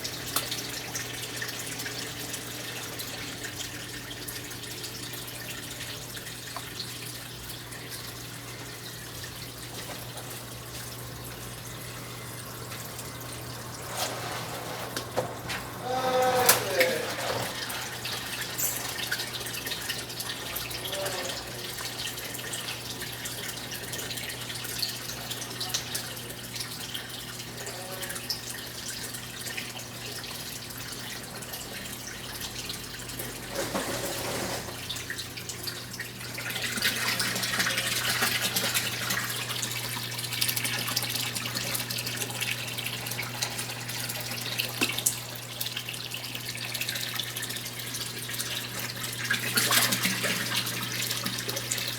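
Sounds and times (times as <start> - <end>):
water pouring into tub: 12.0 - 24.9, 32.5 - 51.9.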